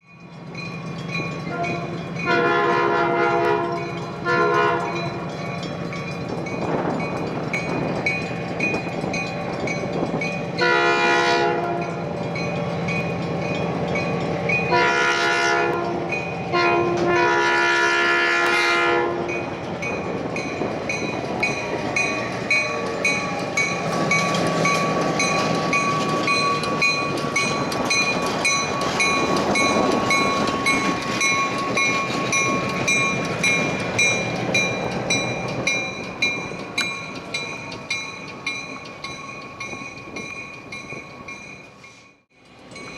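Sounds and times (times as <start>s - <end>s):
crossing warning bell ringing: 0.0s - 42.9s
train horn blasts: 1.5s - 5.2s, 10.6s - 12.0s, 14.7s - 19.4s
train wheels clicking over rail joints: 3.4s - 10.8s, 19.3s - 42.9s.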